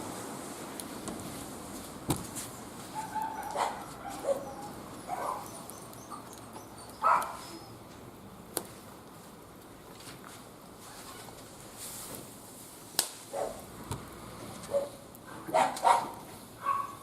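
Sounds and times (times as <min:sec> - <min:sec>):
dog whining and yelping: 0:03.0 - 0:07.8.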